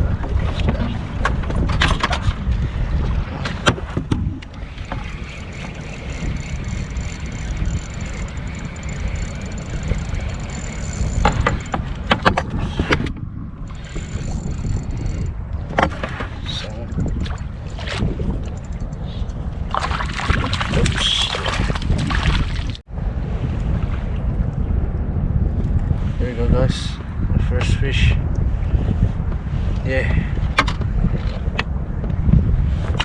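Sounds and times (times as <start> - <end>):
wind buffeting microphone: 0.0 - 33.0
sharp clicks and knocks: 3.7 - 13.1, 13.7 - 20.6.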